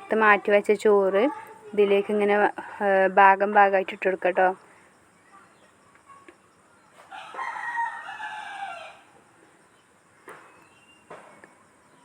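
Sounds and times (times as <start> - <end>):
rooster crowing: 7.0 - 9.2.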